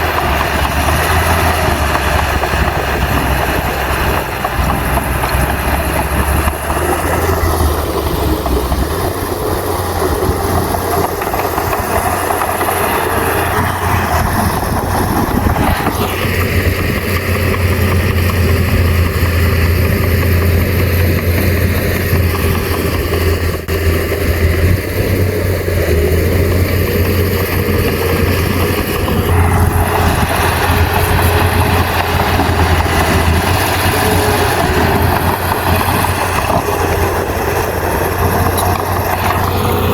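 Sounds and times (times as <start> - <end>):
bulldozer diesel engine drone: 0.0 - 39.9.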